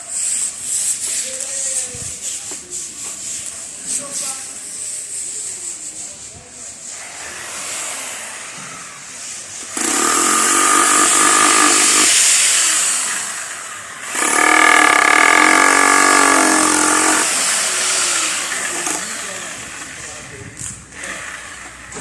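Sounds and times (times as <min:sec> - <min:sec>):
hiss: 0:00.0 - 0:10.2, 0:11.2 - 0:19.4
motor whining: 0:07.2 - 0:22.0.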